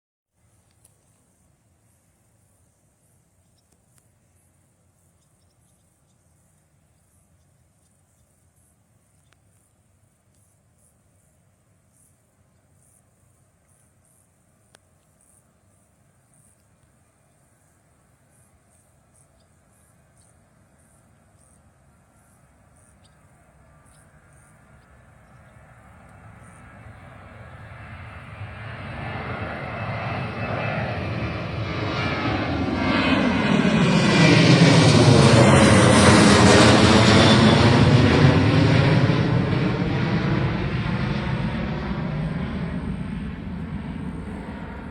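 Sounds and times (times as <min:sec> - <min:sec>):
jet passing by: 0:20.6 - 0:44.9.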